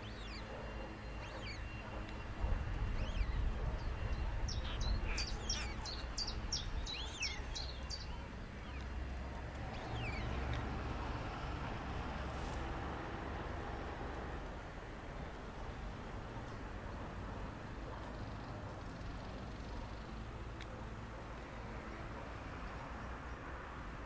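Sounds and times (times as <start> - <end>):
small birds chirping: 0.0 - 10.7.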